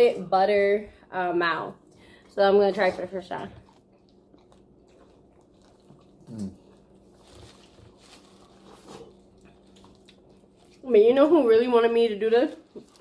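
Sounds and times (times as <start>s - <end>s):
biting and chewing: 2.9s - 10.9s.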